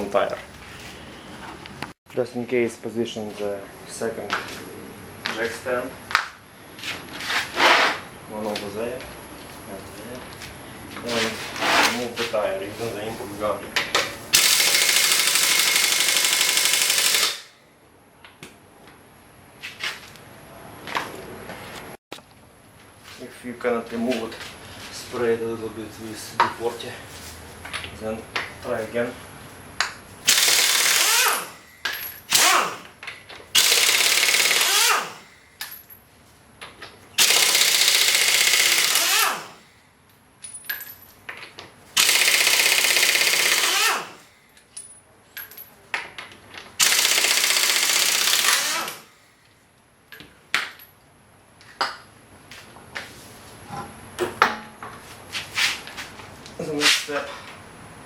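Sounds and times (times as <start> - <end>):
impact wrench hammering: 14.0 - 17.5, 29.8 - 33.0, 33.6 - 35.9, 37.2 - 39.6, 42.0 - 44.3, 46.8 - 49.1.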